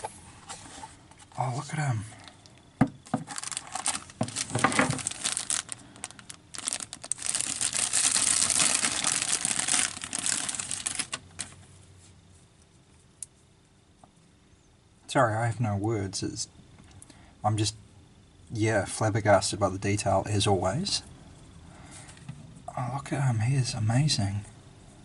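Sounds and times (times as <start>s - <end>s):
packaging crinkling and rustling: 3.0s - 11.6s.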